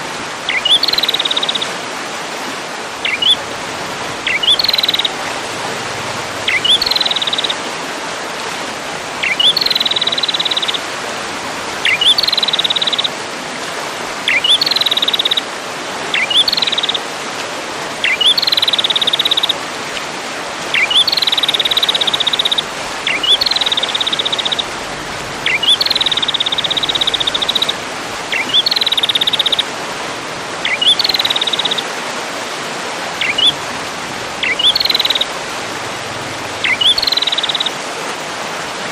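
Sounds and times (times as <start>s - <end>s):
songbird chirping and trilling: 0.5s - 1.7s, 3.0s - 3.4s, 4.2s - 5.2s, 6.4s - 7.6s, 9.2s - 10.8s, 11.8s - 13.1s, 14.2s - 15.5s, 16.1s - 17.0s, 18.0s - 19.6s, 20.7s - 29.7s, 30.6s - 31.9s, 33.2s - 33.6s, 34.4s - 35.4s, 36.5s - 37.8s.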